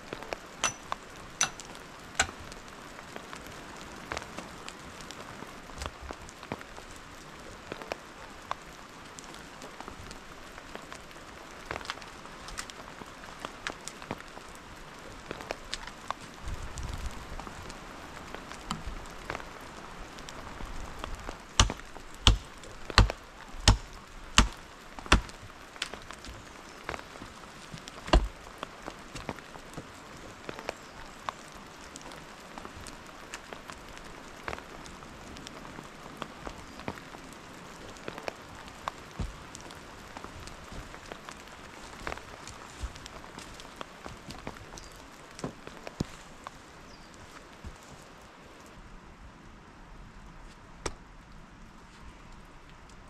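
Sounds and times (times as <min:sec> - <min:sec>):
steady rain: 0:00.0 - 0:53.0
sharp chopping strikes: 0:00.6 - 0:00.8, 0:21.6 - 0:25.3.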